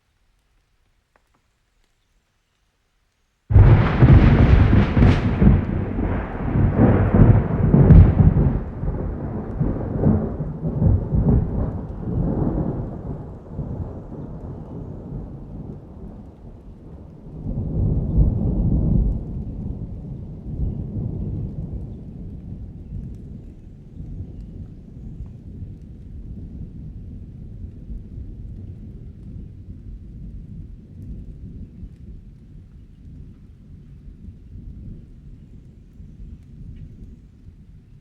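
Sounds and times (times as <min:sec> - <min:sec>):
thunder rumbling: 0:03.5 - 0:32.4.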